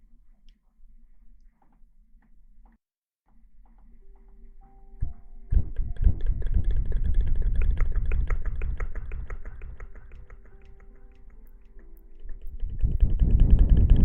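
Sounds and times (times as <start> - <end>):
scratching and rubbing on microphone: 12.3 - 14.0.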